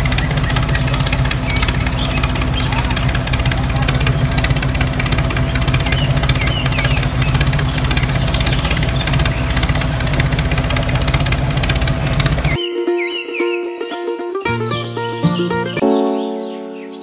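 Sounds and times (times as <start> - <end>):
tractor engine idling: 0.0 - 12.6.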